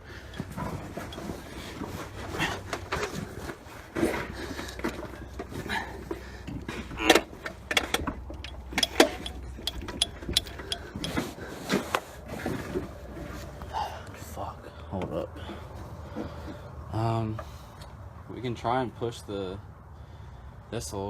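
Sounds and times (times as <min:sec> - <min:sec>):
loud metal clanks: 0:00.0 - 0:11.3
low steady hum: 0:00.0 - 0:20.8
metal clicks and knocks: 0:00.1 - 0:11.3.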